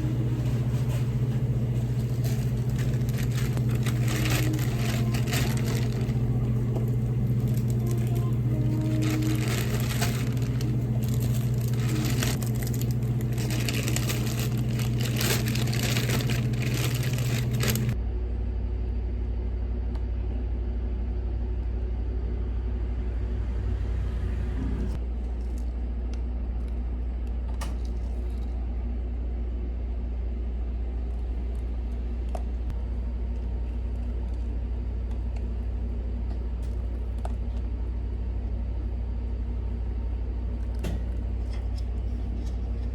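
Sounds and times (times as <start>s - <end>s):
appliance motor humming: 0.0s - 18.0s
low steady hum: 0.0s - 42.9s.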